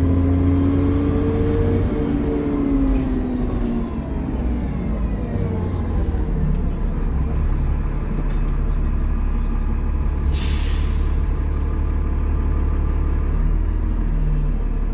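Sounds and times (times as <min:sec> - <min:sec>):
bus diesel engine rumbling: 0:00.0 - 0:14.9
air brake hiss: 0:10.2 - 0:11.4.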